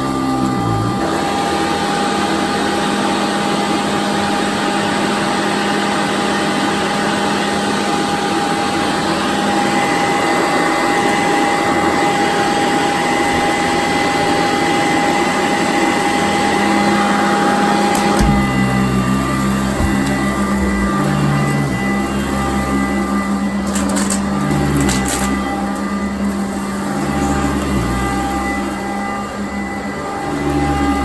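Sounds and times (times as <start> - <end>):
vacuum cleaner running on carpet: 0.0 - 31.0
knock: 18.1 - 18.7, 19.8 - 21.0.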